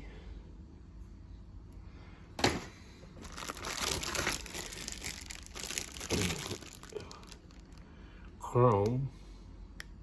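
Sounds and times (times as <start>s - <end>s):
plastic bags crinkling: 2.4s - 8.0s.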